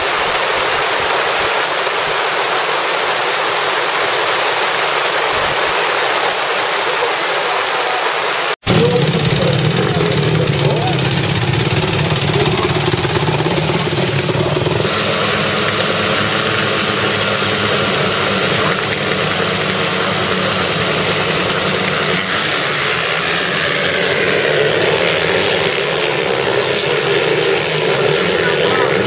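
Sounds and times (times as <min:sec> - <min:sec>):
motocross bike engines running: 0:00.0 - 0:29.0.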